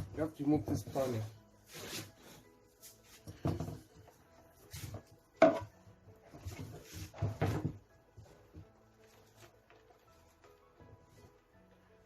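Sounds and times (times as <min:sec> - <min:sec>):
knocks and clatter of a panel: 0:06.5 - 0:07.8.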